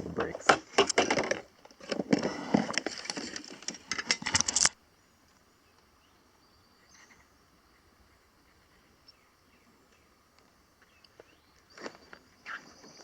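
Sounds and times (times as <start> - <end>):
handling rustling and clattering: 0.0 - 4.8.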